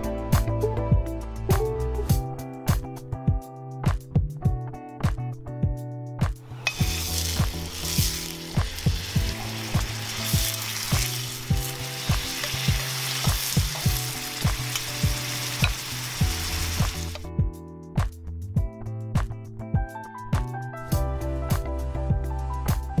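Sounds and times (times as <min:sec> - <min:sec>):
food sizzling in hot oil: 0:06.5 - 0:17.2.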